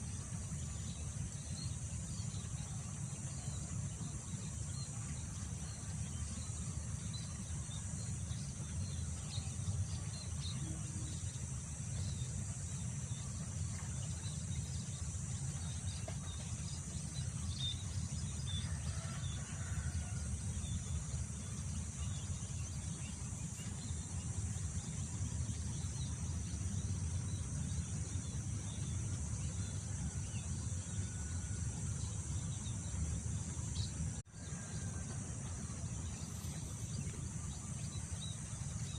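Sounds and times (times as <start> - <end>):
high insect chorus: 0.0 - 38.9.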